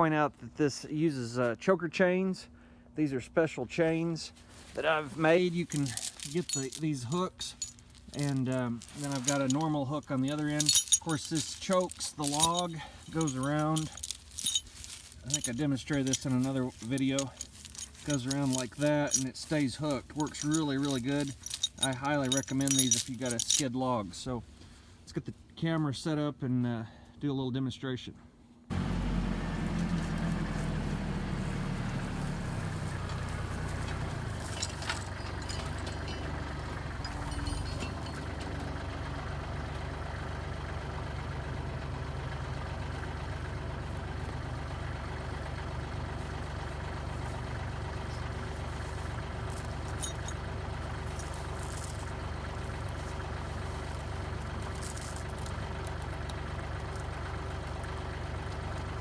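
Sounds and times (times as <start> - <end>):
tractor diesel engine running: 28.7 - 59.0.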